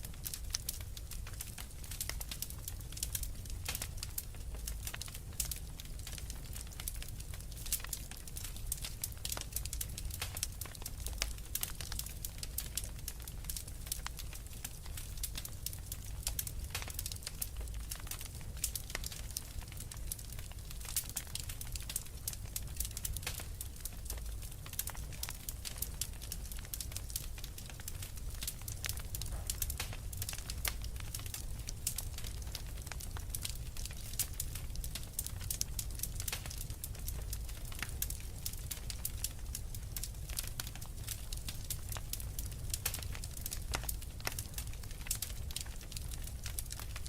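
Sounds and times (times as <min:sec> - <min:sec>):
wood fire crackling and popping: 0:00.0 - 0:47.0.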